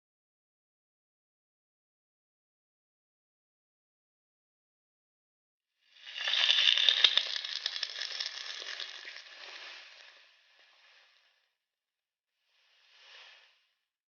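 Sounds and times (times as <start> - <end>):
hot steel hissing in liquid: 6.0 - 11.2.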